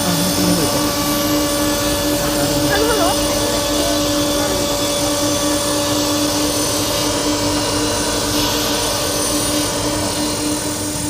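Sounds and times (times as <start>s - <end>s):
machine motors humming and whining: 0.0s - 11.0s.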